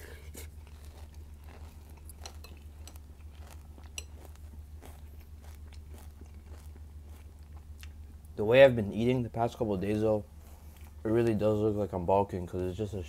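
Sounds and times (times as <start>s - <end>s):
crunchy cereal being chewed: 0.0s - 8.3s.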